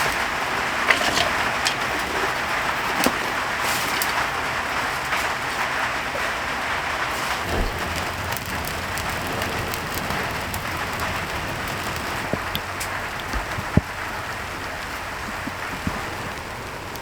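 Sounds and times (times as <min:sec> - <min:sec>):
heavy rain falling: 0:00.0 - 0:17.0
sharp drop impacts: 0:07.4 - 0:12.8.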